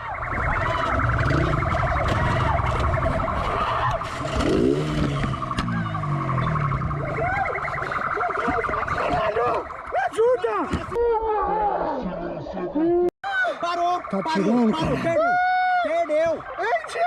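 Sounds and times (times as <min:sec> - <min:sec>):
police siren warbling: 0:00.0 - 0:11.0, 0:13.6 - 0:17.0
vehicle engine and road noise: 0:00.0 - 0:11.0.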